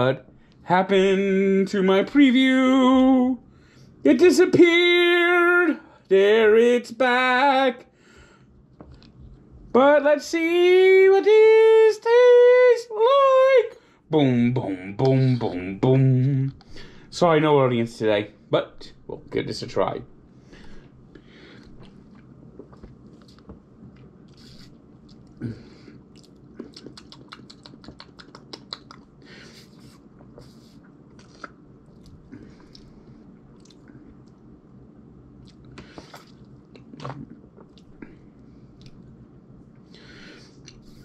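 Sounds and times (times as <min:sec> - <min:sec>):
sipping and swallowing: 0:21.5 - 0:34.5, 0:35.3 - 0:39.1.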